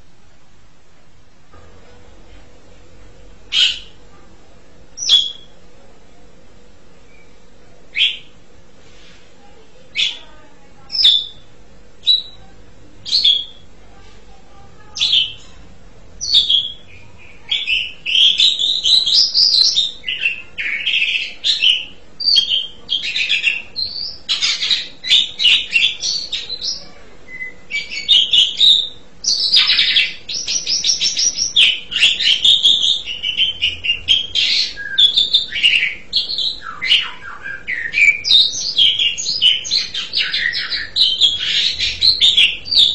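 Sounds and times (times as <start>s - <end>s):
starling calling and singing: 3.5s - 4.0s, 5.0s - 5.6s, 7.1s - 8.3s, 9.9s - 13.7s, 14.8s - 15.6s, 16.2s - 42.9s.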